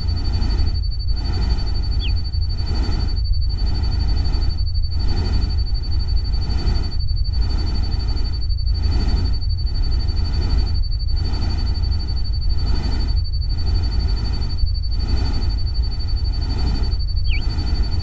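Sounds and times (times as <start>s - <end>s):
thin high tone: 17.2s - 17.6s.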